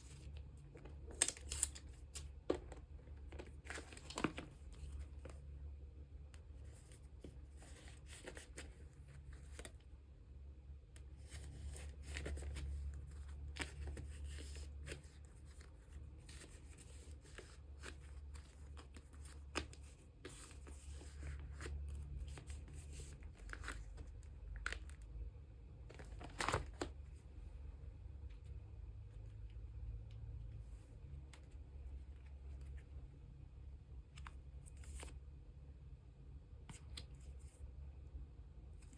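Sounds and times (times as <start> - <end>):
plastic sleeves crinkling: 0.0 - 5.4, 11.1 - 25.0, 25.9 - 27.0
low steady hum: 0.0 - 38.9.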